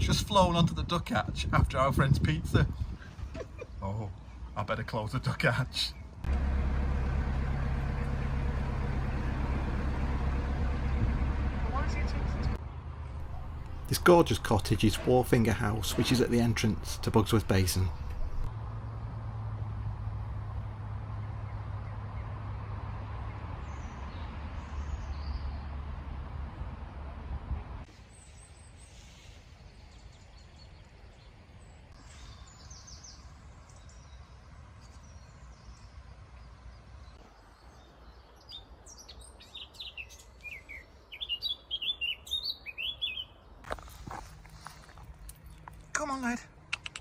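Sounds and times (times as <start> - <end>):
birds chirping: 2.8 - 19.0, 27.9 - 47.0
boat engine humming: 6.3 - 22.7.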